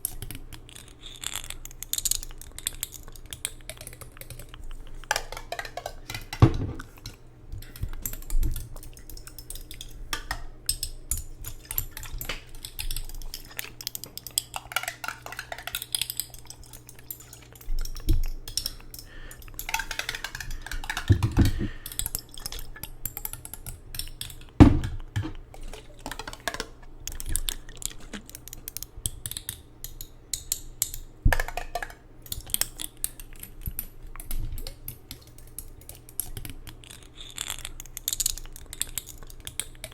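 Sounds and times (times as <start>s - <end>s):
tapping and clicking hard objects: 1.9s - 37.0s.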